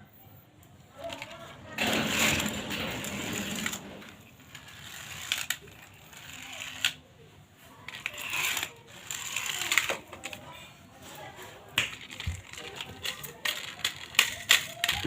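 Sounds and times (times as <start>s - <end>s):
toy cars clicking and clattering: 1.0s - 7.1s, 7.8s - 10.6s, 11.2s - 15.0s.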